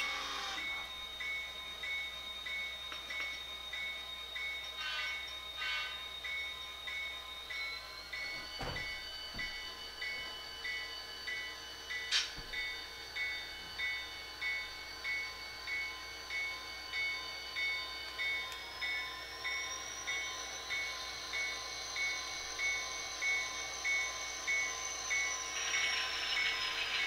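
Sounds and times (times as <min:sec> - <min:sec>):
high whine: 0:00.0 - 0:27.0
locomotive bell ringing: 0:00.0 - 0:27.0.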